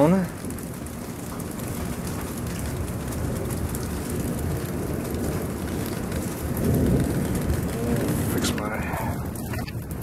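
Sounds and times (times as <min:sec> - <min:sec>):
steady rain falling: 0:00.0 - 0:10.0
wind rumble on microphone: 0:00.4 - 0:10.0.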